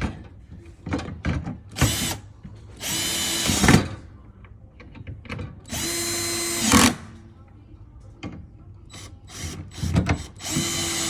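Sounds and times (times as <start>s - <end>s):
power drill driving a screw: 5.7s - 7.0s, 9.3s - 11.0s.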